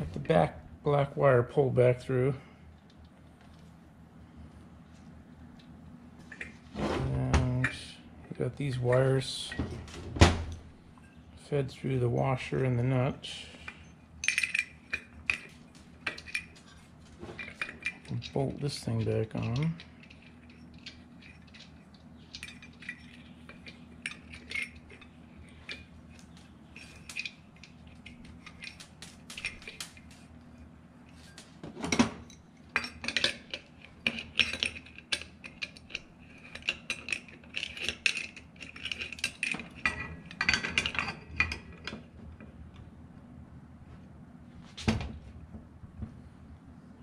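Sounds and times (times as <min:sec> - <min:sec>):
metal parts clinking and knocking: 0:13.6 - 0:30.3, 0:31.1 - 0:42.1.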